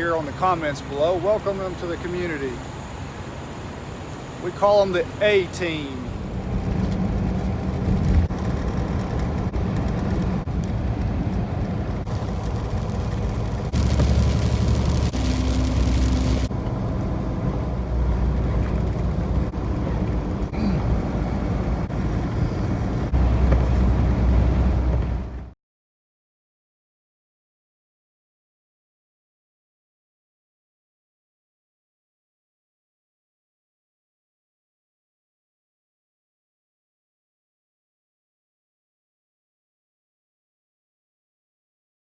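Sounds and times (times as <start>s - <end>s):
road noise: 0.0s - 25.6s
vehicle engine drone: 0.1s - 25.6s.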